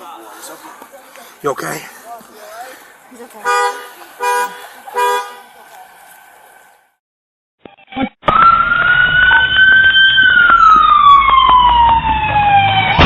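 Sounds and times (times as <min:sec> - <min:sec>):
second siren tone: 0:07.7 - 0:13.0
emergency vehicle siren wailing: 0:08.3 - 0:13.0.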